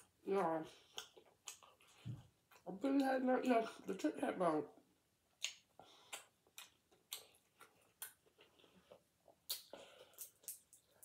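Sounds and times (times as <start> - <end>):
chewing and lip smacking: 0.8 - 3.1, 5.3 - 11.0.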